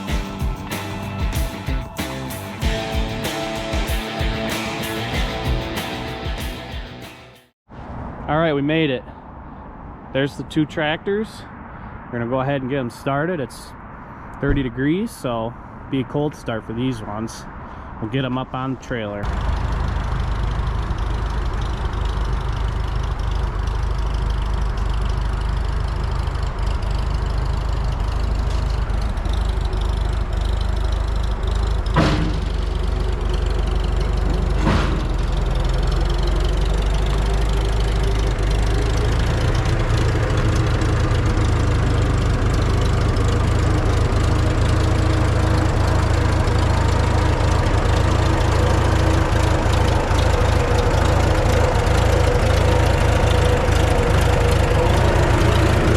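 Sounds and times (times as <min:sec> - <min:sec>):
tractor engine idling: 0:19.2 - 0:55.9
sharp engine knocks: 0:31.8 - 0:32.8, 0:34.0 - 0:37.3.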